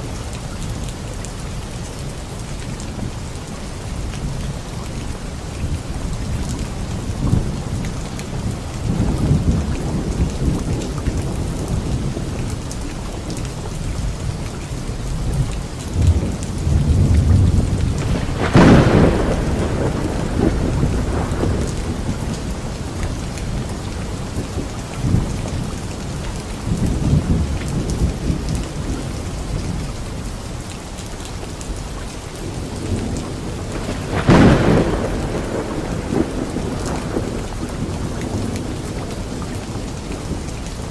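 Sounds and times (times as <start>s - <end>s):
steady rain falling: 0.0s - 40.9s
thunder rumbling: 5.4s - 13.3s, 14.9s - 29.8s, 32.4s - 40.9s
sharp thunderclaps: 16.0s - 25.7s, 32.5s - 40.5s.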